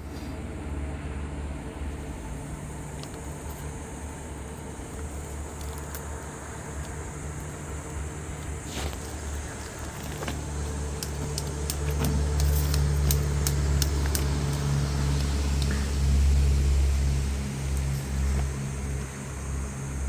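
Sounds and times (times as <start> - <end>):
engine running with low hum: 0.0 - 20.0
light clicks and rattles: 1.6 - 17.1.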